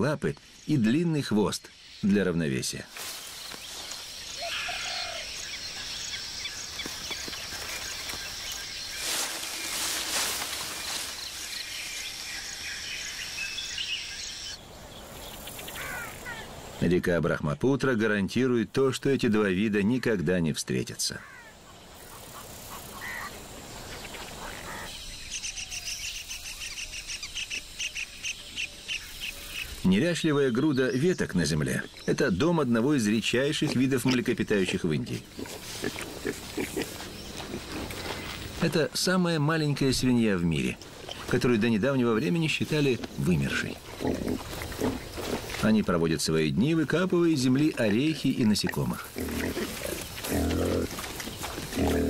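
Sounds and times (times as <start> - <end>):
birds chirping and calling: 0.0 - 16.9, 21.1 - 52.0
leafy rustling: 2.8 - 13.7, 33.3 - 39.5, 40.1 - 52.0.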